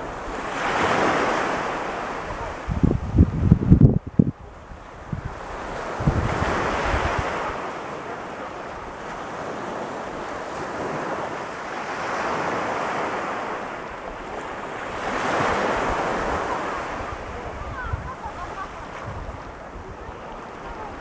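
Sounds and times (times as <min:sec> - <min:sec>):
wind buffeting microphone: 0:00.0 - 0:07.7, 0:14.0 - 0:21.0
ocean surf breaking on beach: 0:00.0 - 0:21.0.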